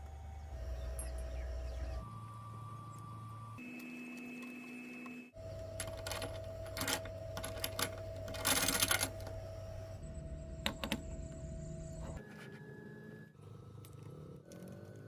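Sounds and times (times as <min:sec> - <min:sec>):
mechanical clicking and clattering: 0:05.7 - 0:09.4.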